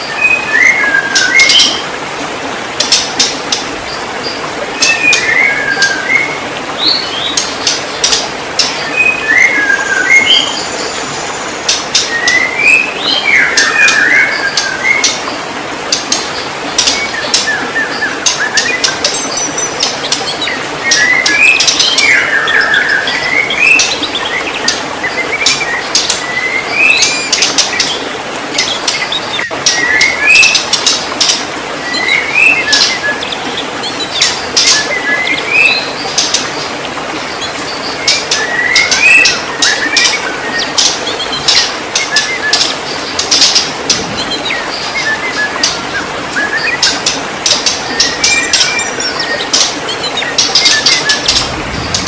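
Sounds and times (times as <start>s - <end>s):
bird singing whistled notes: 38.0s - 47.1s.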